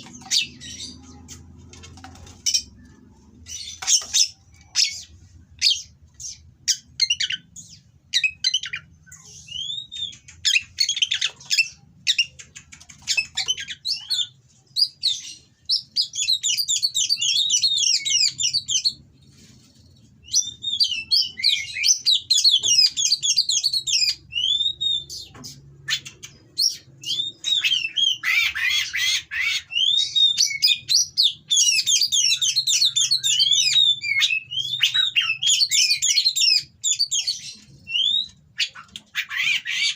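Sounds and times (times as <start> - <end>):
bird singing harsh varied song: 20.2 - 39.9.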